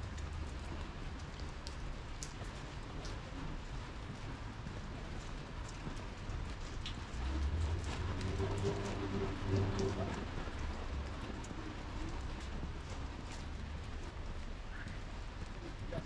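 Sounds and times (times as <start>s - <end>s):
rain on paving and awnings: 0.0s - 16.0s
low rumble: 7.0s - 13.9s.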